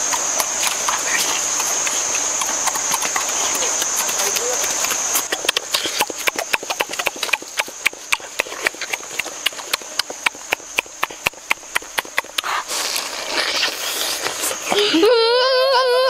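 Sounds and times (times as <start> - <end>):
open mouth chewing smacks: 0.0 - 12.7.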